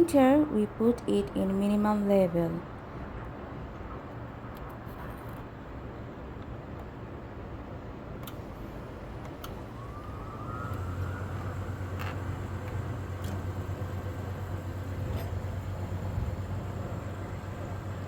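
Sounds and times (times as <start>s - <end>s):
boiler whine: 8.2s - 18.0s
boiler low hum: 8.3s - 18.0s.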